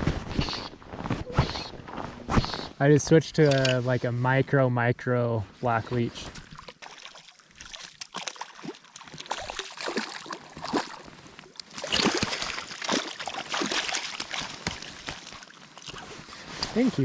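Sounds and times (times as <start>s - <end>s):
fish thrashing in water: 6.4s - 16.8s.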